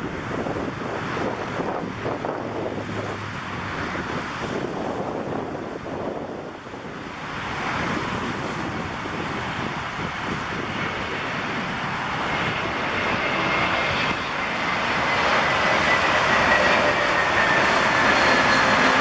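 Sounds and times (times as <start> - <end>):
jet airliner engines passing: 0.0 - 19.0.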